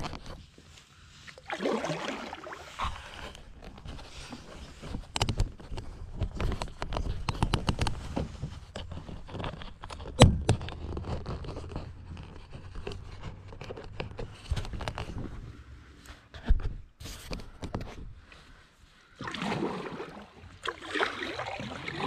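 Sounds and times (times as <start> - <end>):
paddle splashes and drips: 1.2 - 3.5, 19.2 - 22.0.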